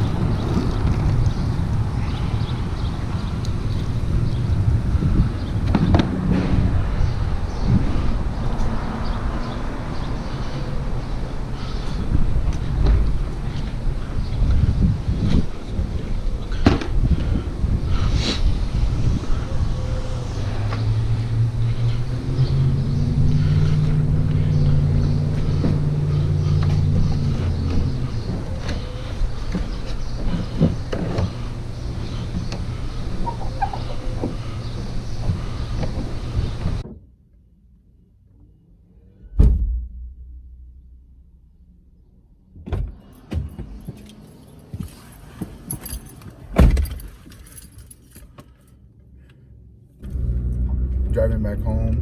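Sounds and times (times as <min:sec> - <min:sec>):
car engine humming: 0:18.7 - 0:36.8, 0:50.0 - 0:52.0
single thump: 0:39.4 - 0:41.3
light metallic jingling: 0:43.0 - 0:48.7.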